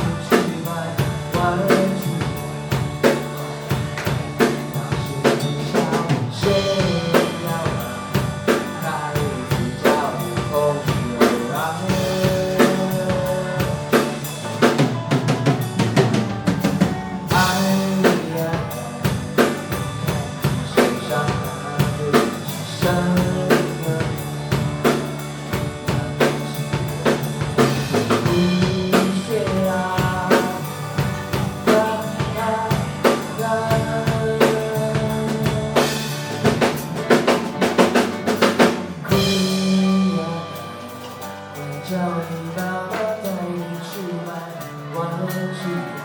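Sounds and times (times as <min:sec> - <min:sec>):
busy drum fill: 0:00.0 - 0:43.4
bass line: 0:00.0 - 0:46.0
drum kit beat: 0:00.0 - 0:46.0.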